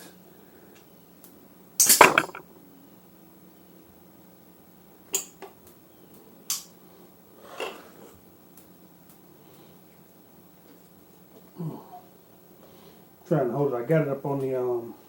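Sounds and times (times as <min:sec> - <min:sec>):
metal parts clinking: 0:01.9 - 0:02.4.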